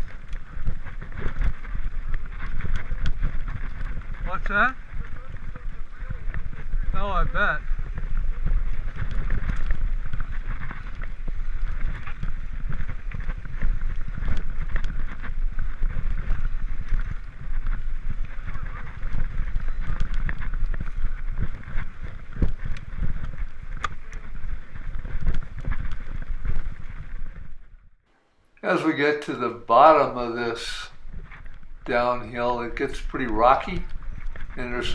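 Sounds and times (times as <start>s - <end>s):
bike rattling clicks and knocks: 0.0s - 27.6s
wind buffeting microphone: 0.0s - 28.0s, 29.0s - 34.9s.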